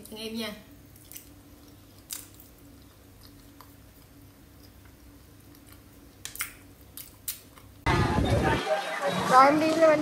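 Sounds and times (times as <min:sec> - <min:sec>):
soft chewing: 0:00.9 - 0:07.8.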